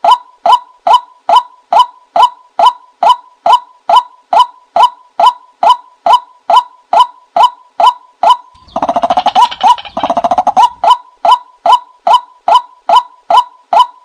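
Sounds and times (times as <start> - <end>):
bird call notes: 8.4 - 11.0
bird rattling run of notes: 8.6 - 11.0.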